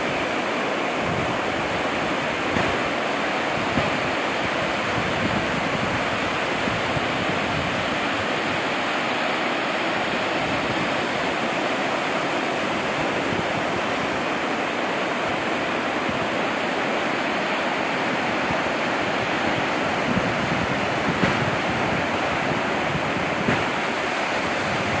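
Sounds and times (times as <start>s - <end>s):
ocean surf: 0.0s - 25.0s
wind: 0.0s - 25.0s.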